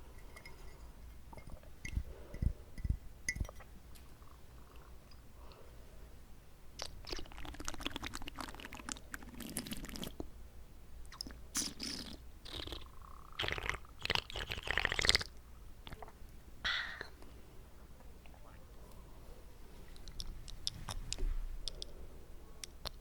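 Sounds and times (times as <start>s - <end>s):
wet mouth clicks and smacks: 6.8s - 10.2s.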